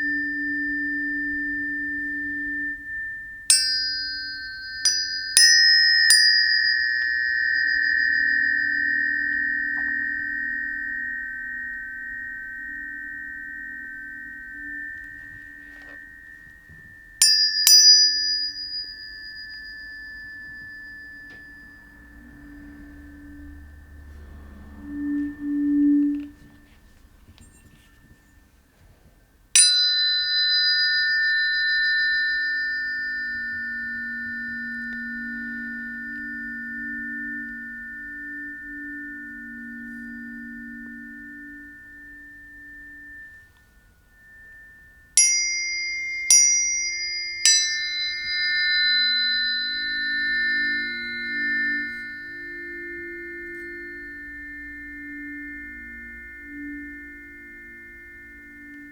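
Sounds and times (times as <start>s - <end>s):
low pulsing tones: 0.0s - 28.7s, 29.3s - 58.9s
tuning forks ringing: 0.0s - 58.9s.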